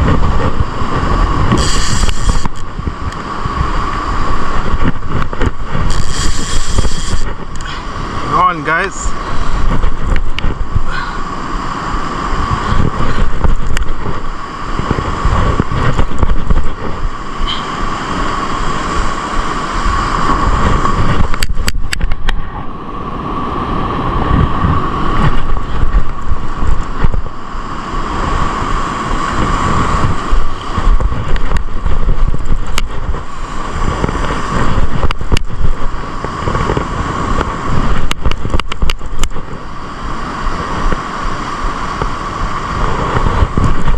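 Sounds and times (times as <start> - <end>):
surf breaking on beach: 0.0 - 43.9
wind buffeting microphone: 0.0 - 43.9
short clicks: 1.5 - 2.7, 5.9 - 7.7.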